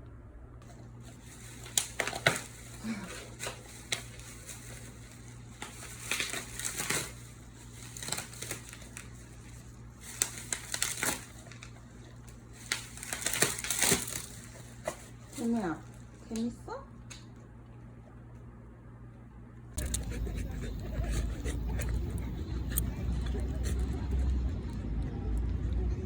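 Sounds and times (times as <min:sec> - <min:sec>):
crinkling and crunching: 0:00.6 - 0:16.5.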